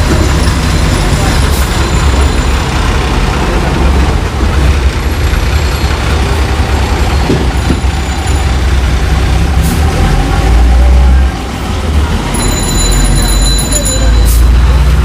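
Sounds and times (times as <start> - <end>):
diesel truck engine rumble: 0.0 - 15.0
road and traffic noise: 0.0 - 15.0.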